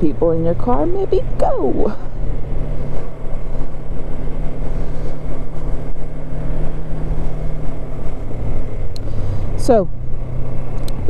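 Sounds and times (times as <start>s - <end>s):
motorcycle engine cruising: 0.0s - 11.0s
wind noise on microphone: 0.0s - 11.0s.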